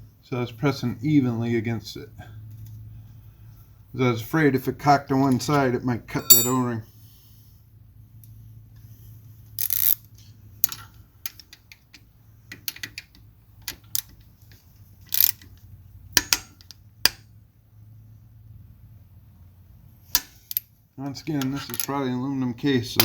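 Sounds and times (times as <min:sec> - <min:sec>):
hand tools clinking on metal: 0:06.2 - 0:06.8.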